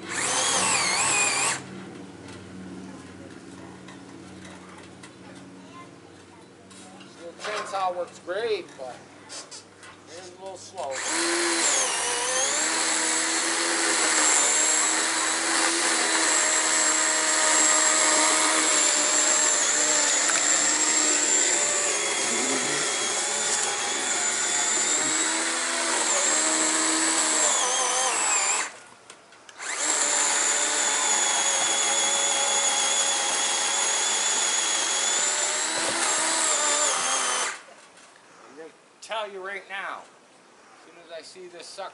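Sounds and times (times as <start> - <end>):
power saw cutting wood: 0.0 - 1.6, 10.8 - 28.8, 29.5 - 37.7.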